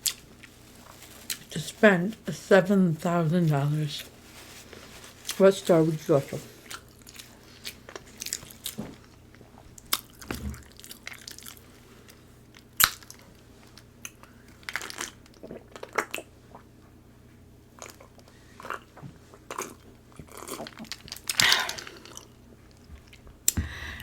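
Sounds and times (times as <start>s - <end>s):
food clicks and crunches: 6.6s - 16.3s, 19.5s - 23.2s
chewing and biting: 6.6s - 16.6s, 17.8s - 23.2s.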